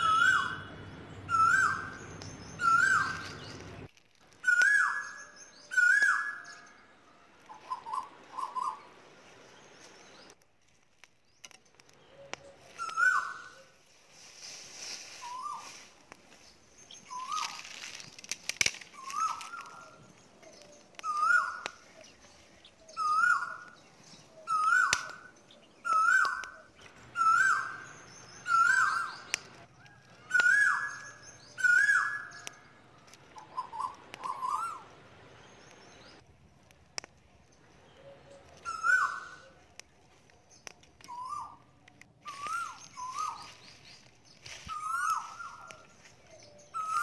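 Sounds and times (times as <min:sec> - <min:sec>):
bird calling: 0:00.0 - 0:10.4, 0:11.4 - 0:47.0.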